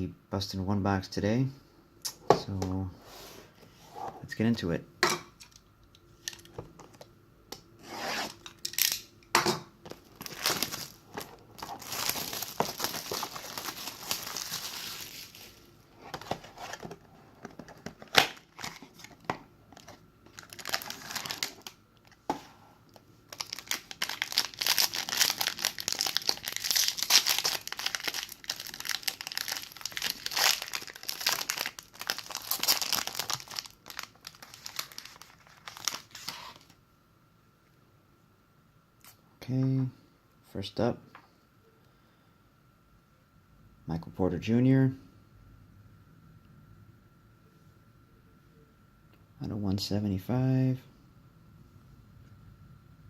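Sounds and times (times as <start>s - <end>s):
plastic wrapping crinkling: 9.8s - 22.3s, 22.9s - 36.8s.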